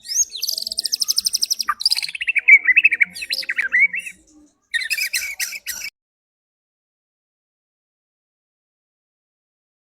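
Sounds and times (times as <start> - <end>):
songbird singing: 0.0 - 5.9.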